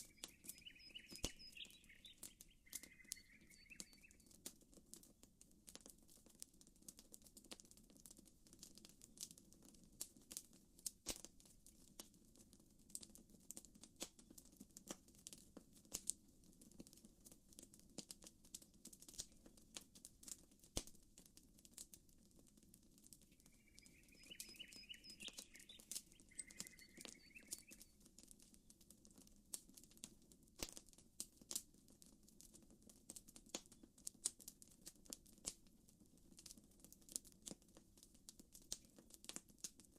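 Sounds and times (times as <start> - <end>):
short chirping call: 0.0 - 4.3, 23.4 - 27.9
campfire crackling: 0.0 - 39.9
burning wood popping: 16.8 - 35.6.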